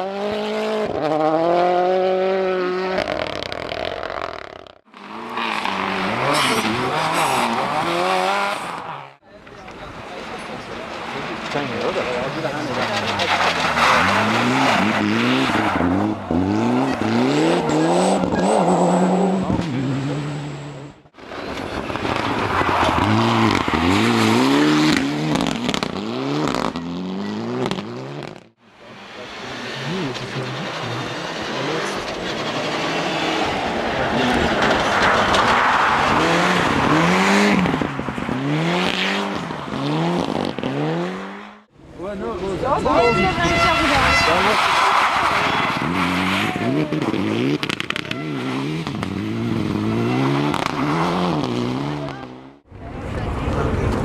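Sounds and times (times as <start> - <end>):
rally car engine revving: 0.0 - 9.2, 10.1 - 54.0.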